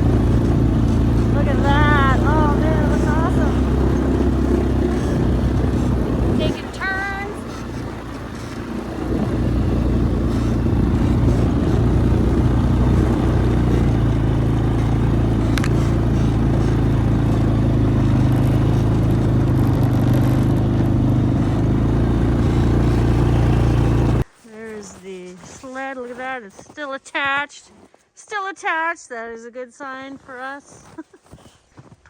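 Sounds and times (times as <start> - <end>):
quad engine under load: 0.0 - 24.3.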